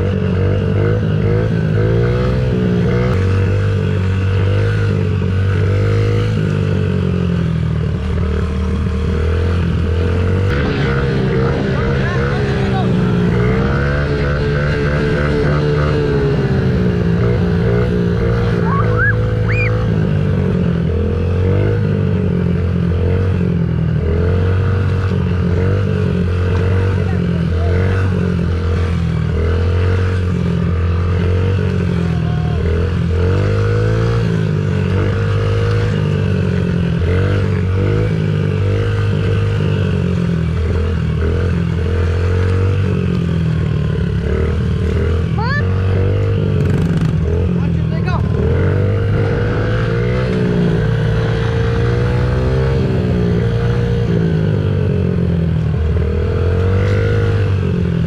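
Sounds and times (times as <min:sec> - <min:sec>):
dirt bike engine revving: 0:00.0 - 0:58.0
rising whistle-like tone: 0:18.6 - 0:19.8.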